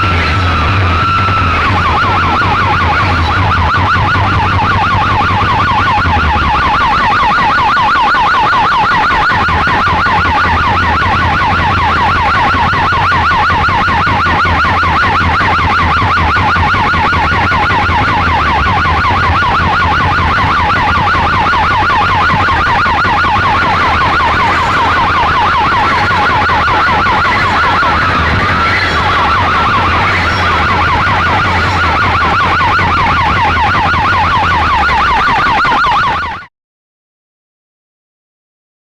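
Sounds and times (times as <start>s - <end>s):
deep bass tone: 0.0s - 7.0s
fast-warbling siren: 0.0s - 36.5s.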